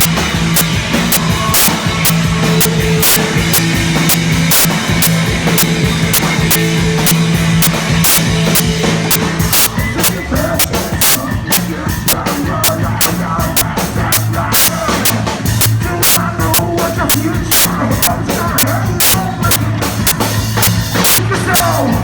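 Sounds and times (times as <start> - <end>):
low bass drone: 0.0 - 10.2
drum beat: 0.0 - 21.9
rock band playing: 0.0 - 22.0.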